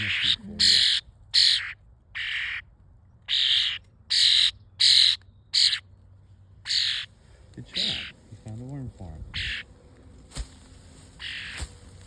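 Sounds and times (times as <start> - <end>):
bird harsh begging calls: 0.0 - 2.7, 3.3 - 5.9, 6.6 - 8.3, 9.3 - 9.7, 11.2 - 11.7.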